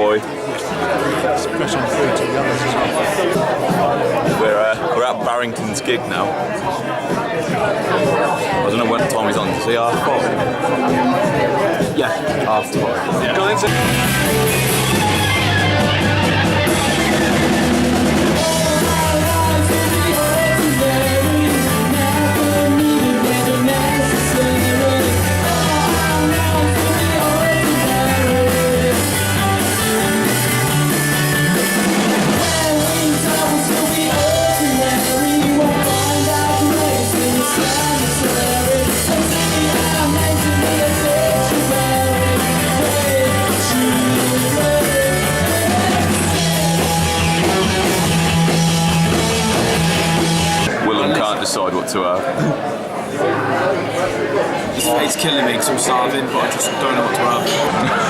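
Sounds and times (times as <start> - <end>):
rock music with singer: 8.3 - 50.8.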